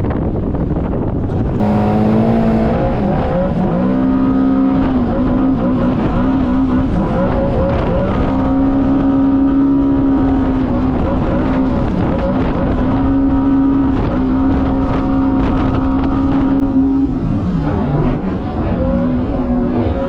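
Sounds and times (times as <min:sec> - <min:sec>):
jet ski engine under throttle: 0:01.6 - 0:03.0.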